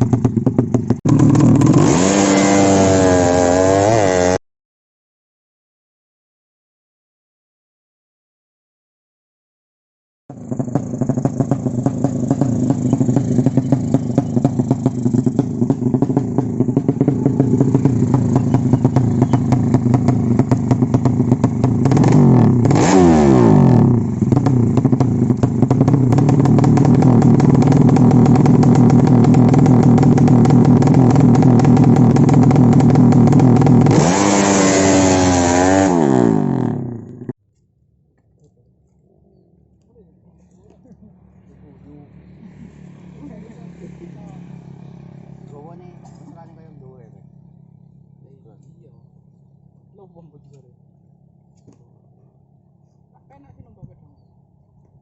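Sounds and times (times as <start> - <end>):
motorcycle racing engine revving: 0.0 - 4.4, 10.3 - 37.3.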